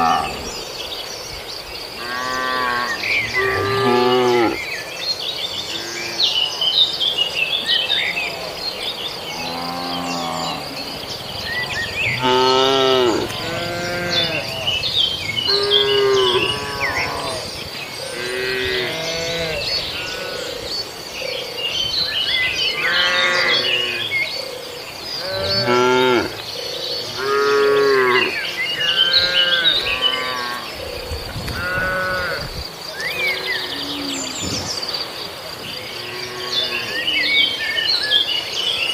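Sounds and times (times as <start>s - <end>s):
birds chirping: 0.0s - 38.9s
cattle mooing: 12.1s - 14.5s, 15.5s - 17.4s.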